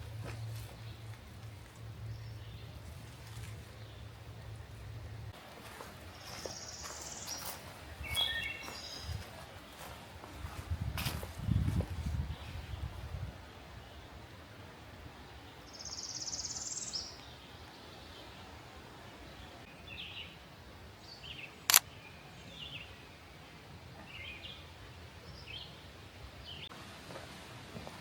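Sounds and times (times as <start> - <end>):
bird chirps: 6.2 - 9.2
sharp click: 21.7 - 21.9.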